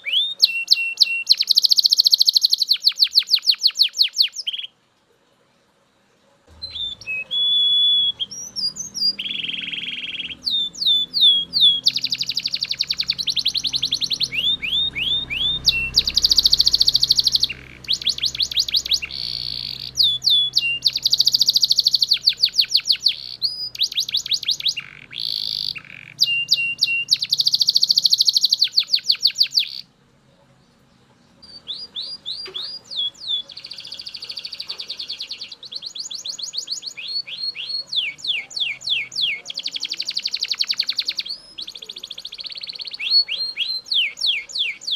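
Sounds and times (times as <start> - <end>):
canary singing trills: 0.0 - 4.8, 6.5 - 44.9.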